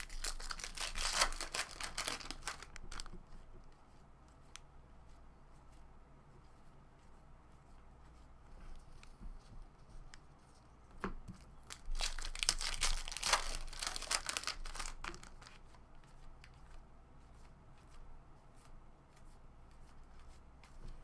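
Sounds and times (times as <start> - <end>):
foil wrapper tearing and crinkling: 0.0 - 3.1, 11.6 - 15.5.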